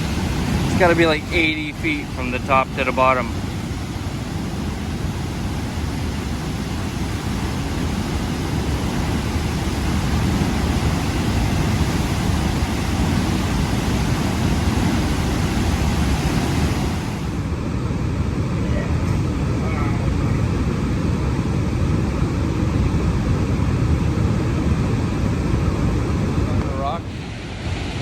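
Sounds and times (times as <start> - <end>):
waterfall rushing: 0.0 - 17.5.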